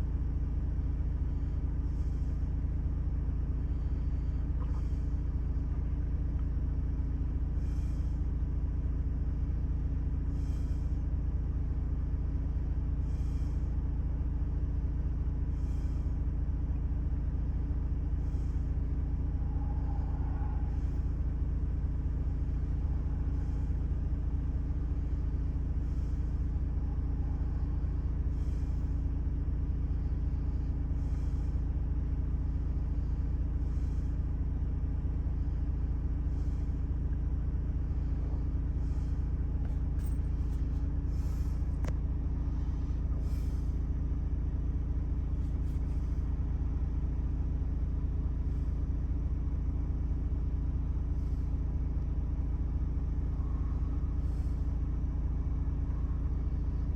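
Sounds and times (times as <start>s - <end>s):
diesel engine idling: 0.0s - 56.9s.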